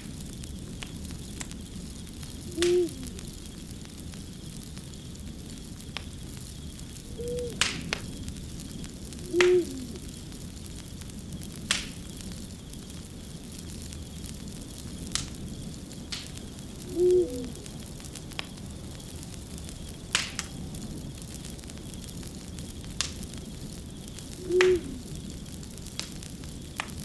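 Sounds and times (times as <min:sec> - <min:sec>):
wood fire crackling and popping: 0:00.0 - 0:27.0
low-pitched tonal calls: 0:02.4 - 0:03.3, 0:07.0 - 0:08.0, 0:09.1 - 0:10.0, 0:16.8 - 0:17.8.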